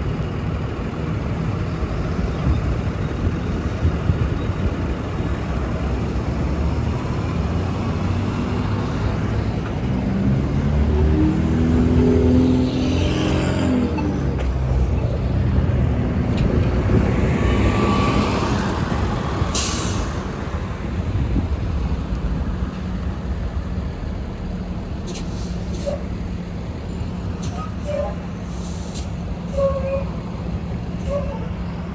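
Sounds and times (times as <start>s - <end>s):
bus engine: 0.0s - 31.9s
air-brake hiss: 19.5s - 20.3s, 25.1s - 26.1s, 28.4s - 29.8s.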